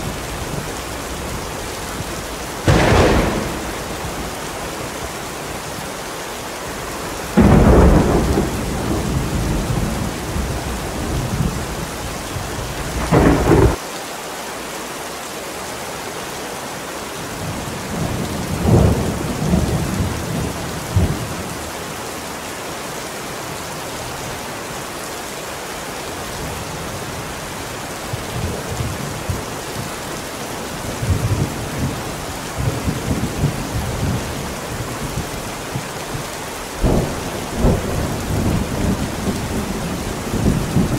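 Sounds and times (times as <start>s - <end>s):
soft rolls of thunder: 0.0s - 5.6s, 7.3s - 13.8s, 36.8s - 40.9s
heavy rain falling: 0.0s - 40.9s
loud thunderclap: 2.0s - 5.2s, 7.3s - 11.6s, 12.7s - 13.8s, 36.8s - 40.9s.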